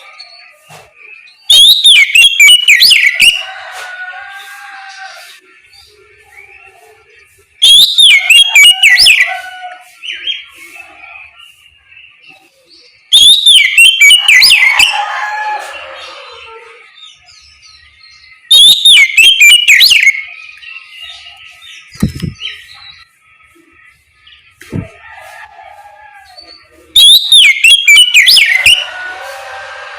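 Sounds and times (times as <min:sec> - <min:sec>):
bird singing whistled song: 0:00.1 - 0:03.4, 0:07.6 - 0:09.4, 0:11.4 - 0:15.0, 0:17.0 - 0:23.1, 0:26.4 - 0:28.9
soft bird twittering: 0:17.1 - 0:25.0.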